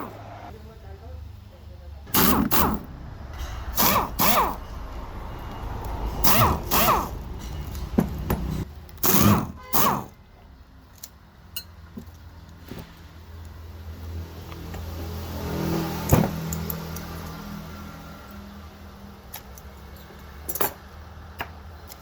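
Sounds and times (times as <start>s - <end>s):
small power tool whining: 2.2s - 2.9s, 3.7s - 4.6s, 6.2s - 7.2s, 9.0s - 10.1s.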